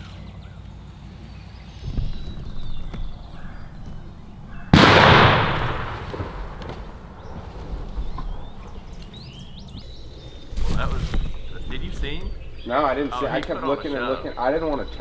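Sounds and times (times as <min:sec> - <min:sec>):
shotgun blast: 0:04.7 - 0:09.1.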